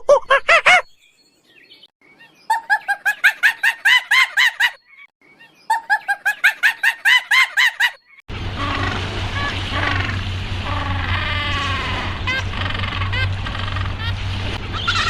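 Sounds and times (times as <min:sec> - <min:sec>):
goose honking: 0:08.4 - 0:15.0.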